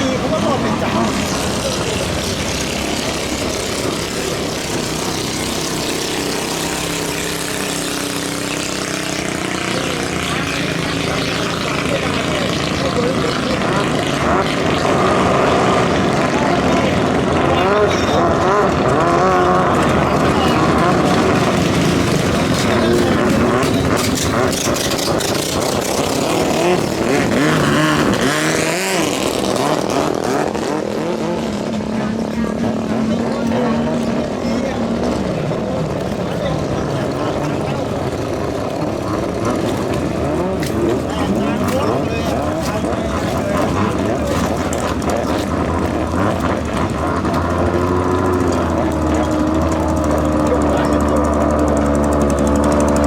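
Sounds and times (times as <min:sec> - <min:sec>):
boat engine running: 0:00.0 - 0:53.0.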